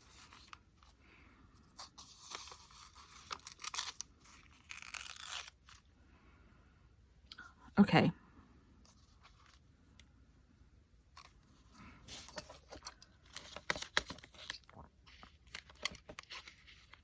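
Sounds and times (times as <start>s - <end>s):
paper tearing and rustling: 1.8s - 5.8s.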